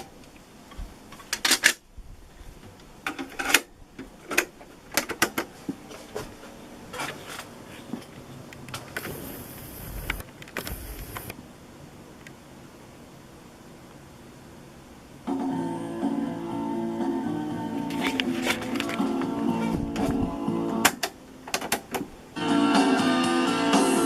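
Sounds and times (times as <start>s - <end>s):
tape hiss: 0.0s - 24.0s
cassette deck plastic clicks: 20.8s - 22.1s.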